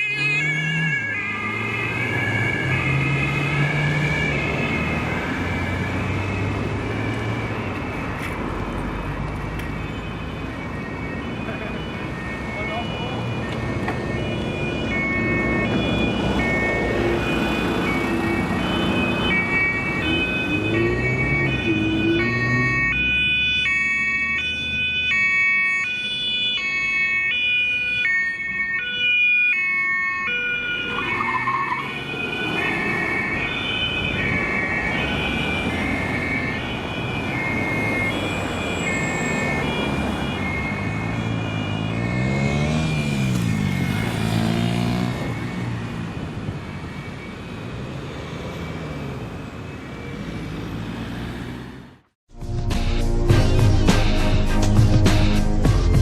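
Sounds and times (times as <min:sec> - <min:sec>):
two-tone police siren: 0:00.0 - 0:52.0
city traffic noise: 0:00.0 - 0:56.0
vehicle engine rising and falling: 0:37.4 - 0:47.0.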